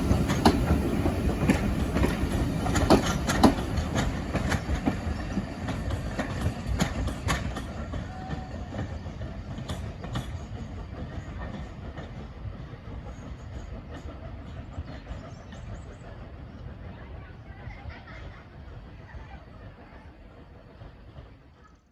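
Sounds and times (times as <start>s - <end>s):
wheels clicking over rail joints: 0.0s - 16.1s
train rumbling on rails: 0.0s - 21.9s.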